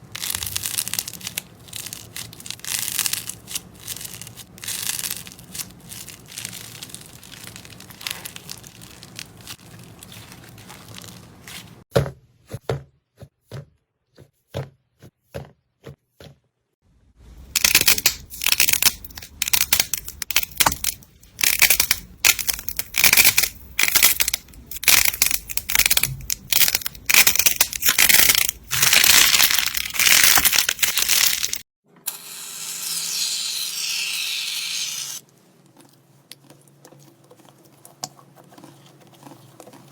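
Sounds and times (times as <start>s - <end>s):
slime crackling and crunching: 0.0s - 11.9s, 17.5s - 31.7s
slime rubbing: 0.1s - 11.8s, 35.9s - 39.9s.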